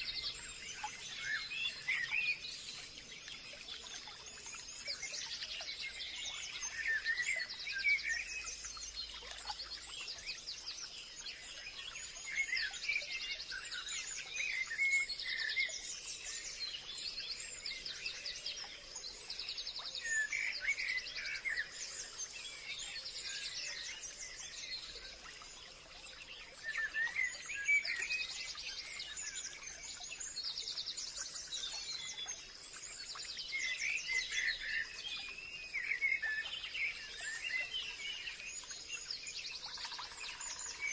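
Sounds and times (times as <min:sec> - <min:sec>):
songbirds chirping and trilling: 0:00.0 - 0:40.9.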